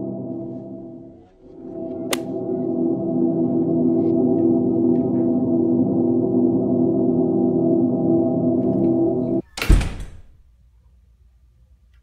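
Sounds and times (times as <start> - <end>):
steady tones drone: 0.0 - 9.4.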